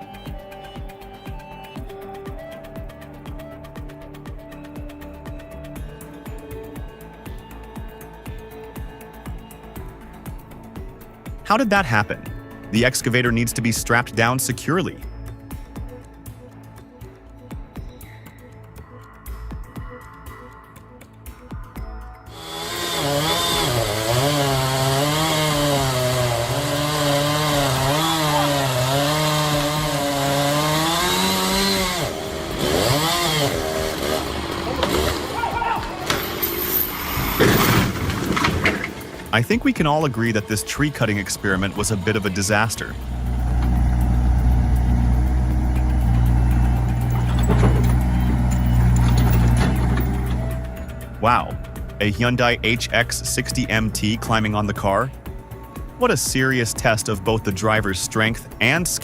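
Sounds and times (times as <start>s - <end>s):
heavy machine engine humming: 22.3s - 37.4s, 40.5s - 55.2s
chainsaw cutting wood: 22.3s - 39.4s, 40.8s - 52.0s.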